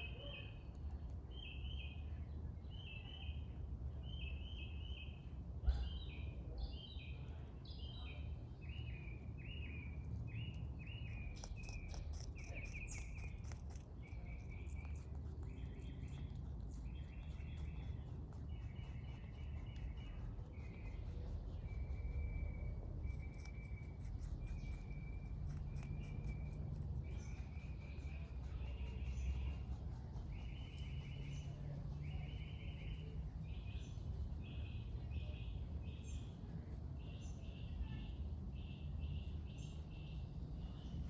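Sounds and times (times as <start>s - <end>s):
small birds chirping: 0.0s - 41.0s
rabbit chewing clicks: 0.5s - 2.0s, 9.8s - 33.0s.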